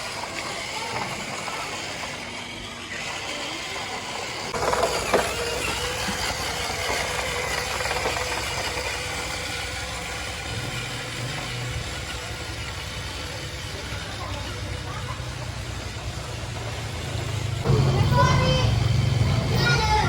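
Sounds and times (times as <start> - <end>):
toy electric motor whirring: 0.0 - 20.0
gearbox clatter: 4.4 - 14.0.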